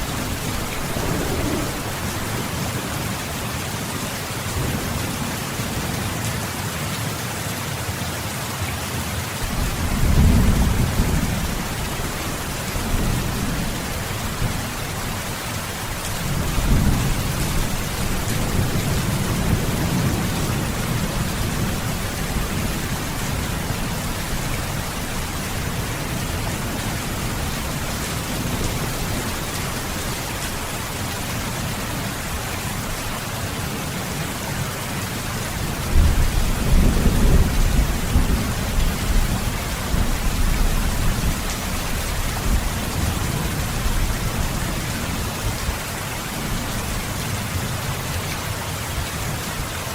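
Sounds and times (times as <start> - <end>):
rolling thunder: 0.0 - 3.4, 9.5 - 14.7, 35.8 - 45.8
rain hissing: 0.0 - 4.7, 9.4 - 47.9.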